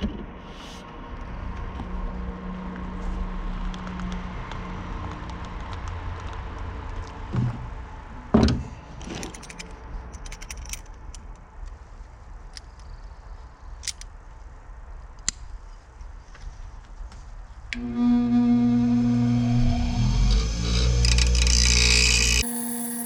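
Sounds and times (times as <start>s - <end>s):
low road hum: 0.4s - 23.0s
small metal parts clinking: 9.1s - 11.0s.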